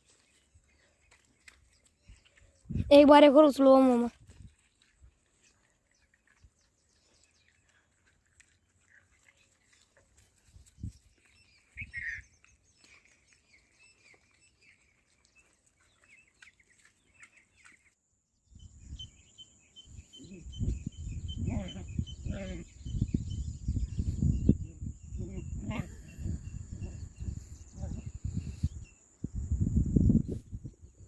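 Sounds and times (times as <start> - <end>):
birds chirping: 10.7 - 29.4.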